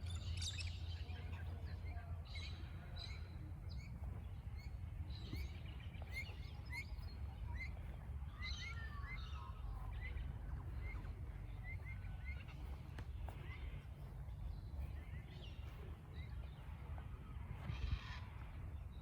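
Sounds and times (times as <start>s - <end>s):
bird chirping: 0.0s - 19.0s
birds calling: 0.0s - 19.0s.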